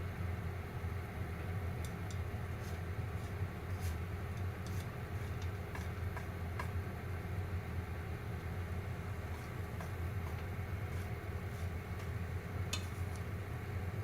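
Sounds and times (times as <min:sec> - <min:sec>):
cooking appliance hum: 0:00.0 - 0:14.0
popcorn popping: 0:03.3 - 0:06.8, 0:08.4 - 0:13.4.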